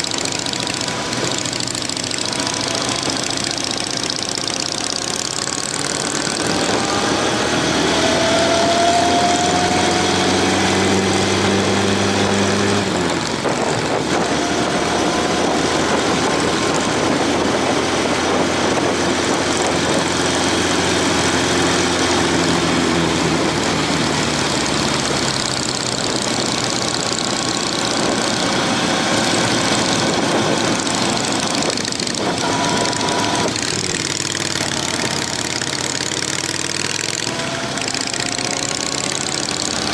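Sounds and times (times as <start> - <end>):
motorcycle engine running: 0.0 - 39.9
wind noise: 5.2 - 35.6.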